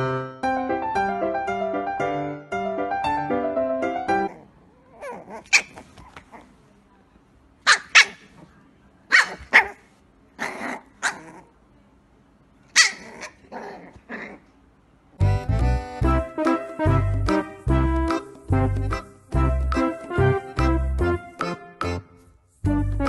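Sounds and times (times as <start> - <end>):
piano music: 0.0 - 4.3, 15.2 - 23.0
puppy yapping: 4.3 - 6.5, 7.7 - 8.4, 9.1 - 11.5, 12.7 - 14.5.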